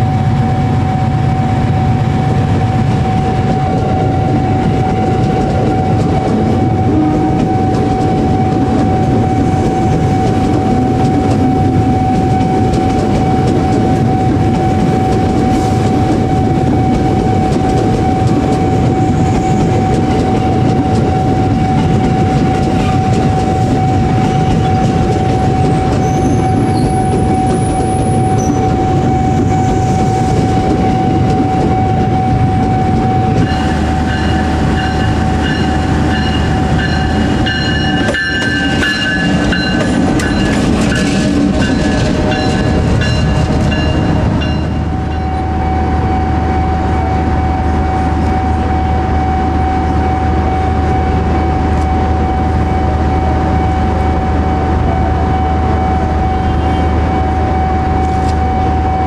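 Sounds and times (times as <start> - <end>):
diesel locomotive engine hum: 0.0 - 59.0
electric train running past: 0.0 - 59.0
steady high tone: 28.3 - 59.0.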